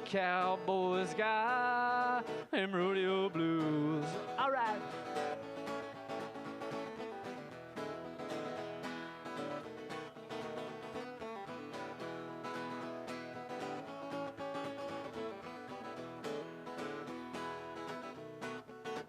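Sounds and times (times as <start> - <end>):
person singing: 0.0 - 5.1
acoustic guitar strumming: 0.0 - 19.0.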